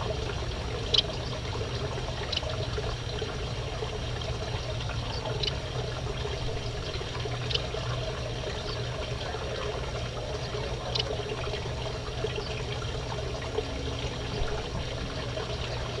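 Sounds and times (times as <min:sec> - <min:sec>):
trickling water: 0:00.0 - 0:16.0
finches and canary chirping: 0:10.4 - 0:11.2.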